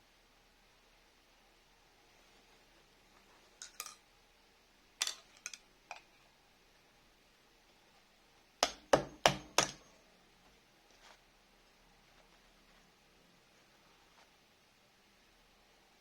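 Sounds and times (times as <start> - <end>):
metal clinks and taps: 3.6 - 4.0, 5.0 - 6.1.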